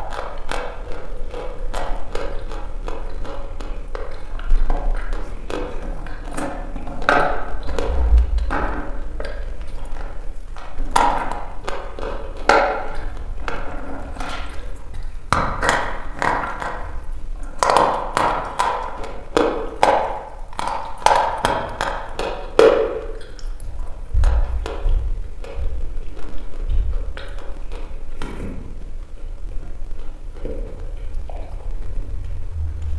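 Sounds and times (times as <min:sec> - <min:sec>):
low thumps: 0:07.8 - 0:09.6, 0:24.1 - 0:26.0, 0:32.0 - 0:32.9.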